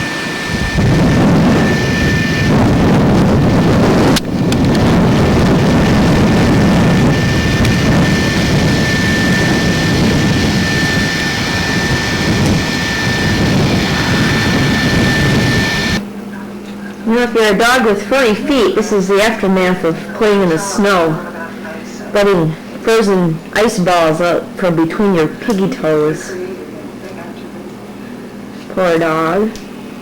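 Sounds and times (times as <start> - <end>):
wind buffeting microphone: 0.0 - 16.0
faint high whine: 0.0 - 30.0.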